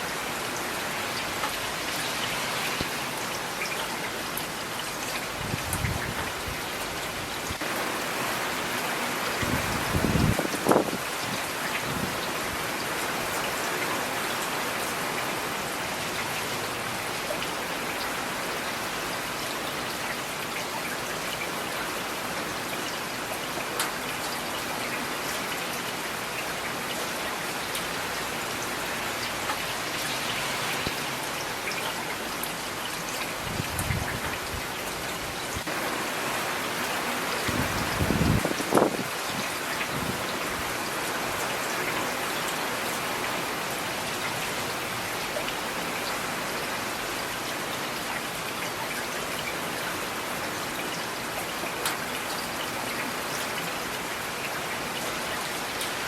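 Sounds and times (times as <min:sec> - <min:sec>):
steady rain on hard surfaces: 0:00.0 - 0:56.0.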